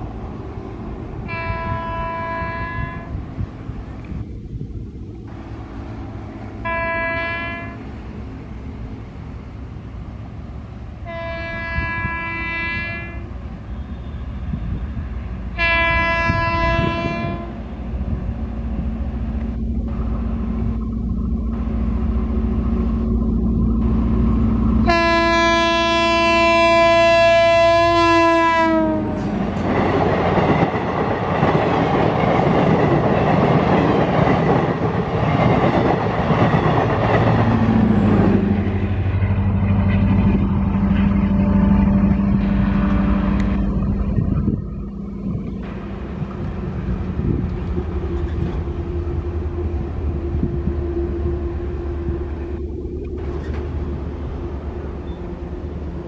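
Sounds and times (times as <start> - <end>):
train engine rumbling: 0.0 - 56.0
train horn blasts: 1.2 - 3.2, 6.6 - 7.9, 11.0 - 17.9, 24.8 - 29.5, 38.4 - 44.0, 45.7 - 56.0
train wheels clattering on rails: 28.7 - 41.3.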